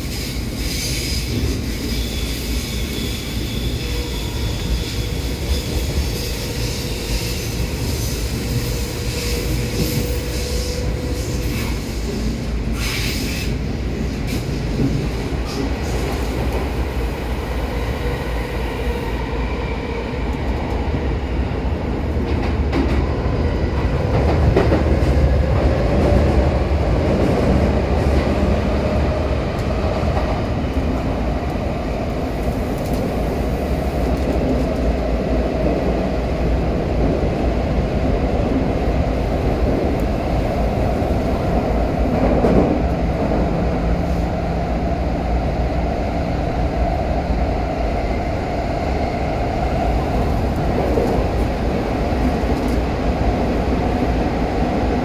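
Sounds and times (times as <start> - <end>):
wheels rumbling on rail: 0.0 - 55.0
rail clicks: 39.3 - 44.4.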